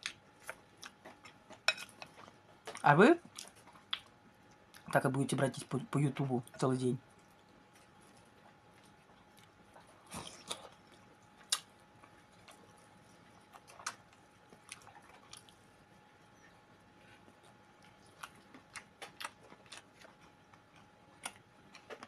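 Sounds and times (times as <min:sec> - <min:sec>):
faint chewing: 0:00.0 - 0:05.0, 0:06.4 - 0:22.0
sharp mouth clicks and smacks: 0:11.5 - 0:11.7.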